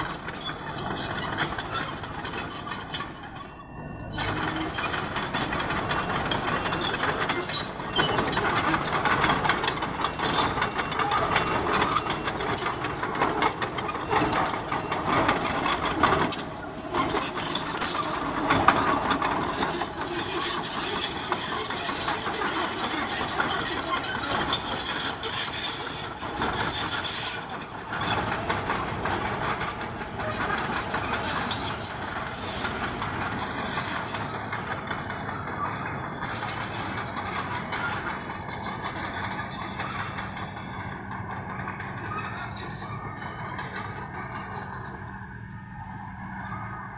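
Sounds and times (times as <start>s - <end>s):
diesel engine running under load: 0.0s - 46.9s
tracks and blade grinding stone: 4.2s - 41.0s.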